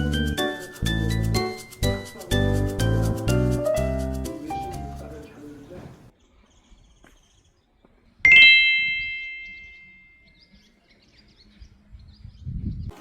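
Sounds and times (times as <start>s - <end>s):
bright bell ding: 8.3s - 10.3s.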